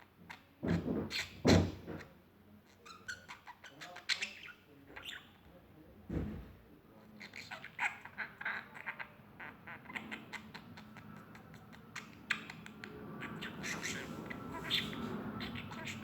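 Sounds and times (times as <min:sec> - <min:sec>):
birds chirping and squawking: 0:02.8 - 0:05.4, 0:07.2 - 0:16.0.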